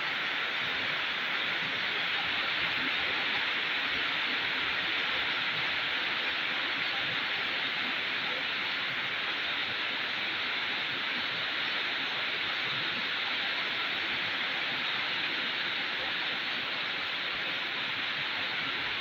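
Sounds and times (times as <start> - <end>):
steady rainfall: 0.0 - 19.0.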